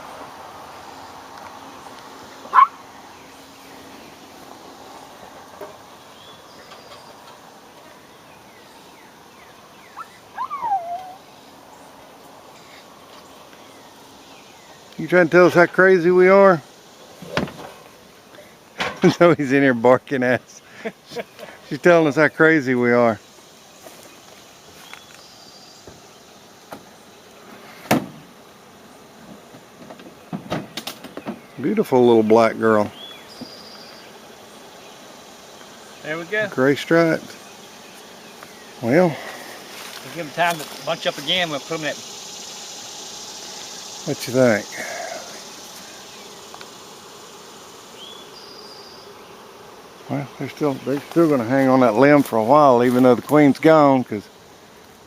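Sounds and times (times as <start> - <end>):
outdoor background hiss: 0.0 - 55.0
faint high chirps: 9.8 - 11.3.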